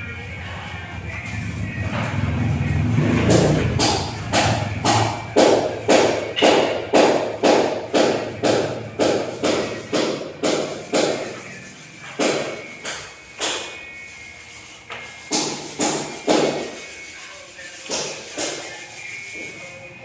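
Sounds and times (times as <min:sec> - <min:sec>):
hammer blows: 0:01.8 - 0:13.8, 0:15.0 - 0:16.7.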